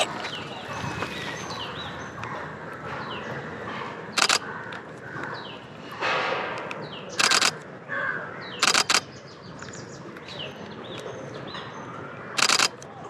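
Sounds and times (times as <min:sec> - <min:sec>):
birds calling: 0:00.0 - 0:13.0
camera shutter bursts: 0:04.2 - 0:04.4, 0:07.2 - 0:07.6, 0:08.6 - 0:09.1, 0:12.4 - 0:12.8.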